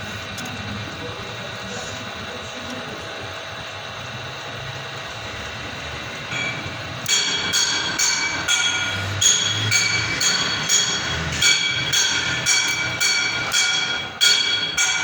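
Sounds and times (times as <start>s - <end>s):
hammer striking ringing steel: 6.3s - 15.0s.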